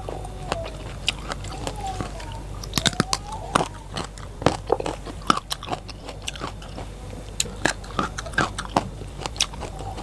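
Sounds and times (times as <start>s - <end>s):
crunching and chewing vegetables: 0.0s - 10.0s.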